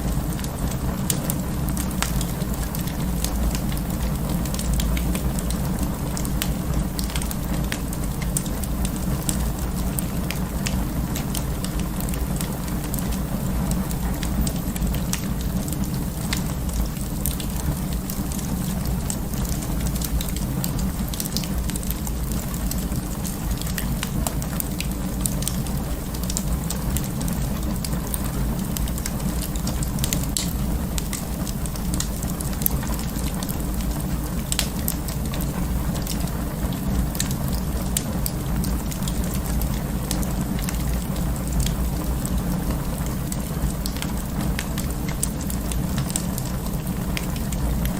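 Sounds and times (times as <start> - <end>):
low rumble of flames: 0.0 - 47.9
wood fire crackling: 0.0 - 47.9.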